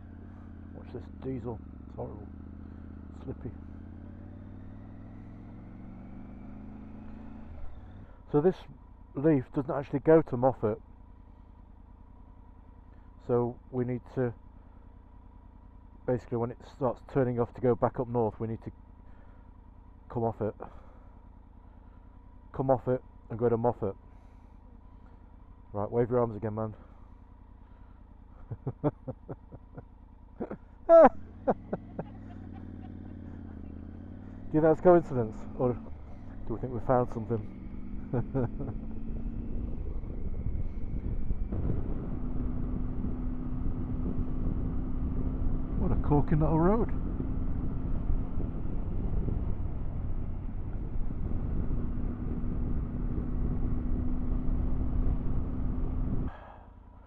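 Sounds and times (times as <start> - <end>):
motorcycle engine idling and revving: 0.0 - 57.0
wind rush on microphone: 40.0 - 42.4.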